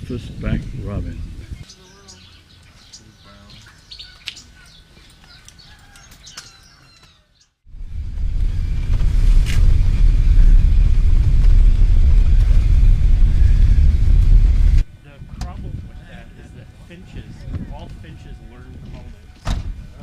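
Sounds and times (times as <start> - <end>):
birds chirping: 0.0 - 7.7
loud steady low rumble: 7.7 - 19.2.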